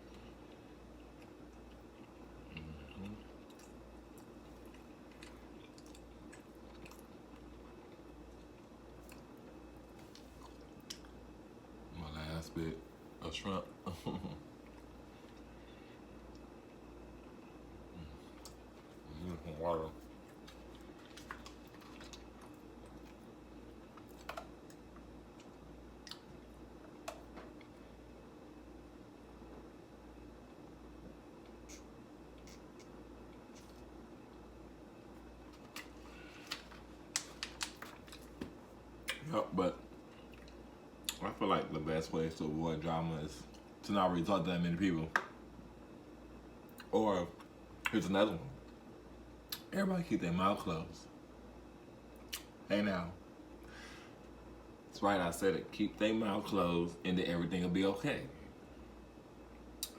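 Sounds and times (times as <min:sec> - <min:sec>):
steady low hum: 0:00.0 - 0:59.9
person chewing: 0:00.1 - 0:11.1, 0:20.1 - 0:26.4, 0:31.4 - 0:33.9, 0:35.2 - 0:39.2, 0:40.0 - 0:41.2
soft eating clicks: 0:00.1 - 0:11.2, 0:18.3 - 0:19.0, 0:19.9 - 0:27.8, 0:31.0 - 0:34.4, 0:35.1 - 0:39.3, 0:39.9 - 0:41.4, 0:52.1 - 0:52.6, 0:59.5 - 0:59.9
wet mouth clicks: 0:31.6 - 0:32.9.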